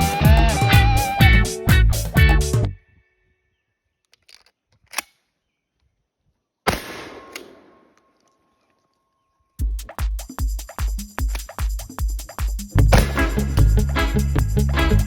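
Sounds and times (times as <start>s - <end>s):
shotgun shot: 6.7s - 8.0s, 12.9s - 13.5s.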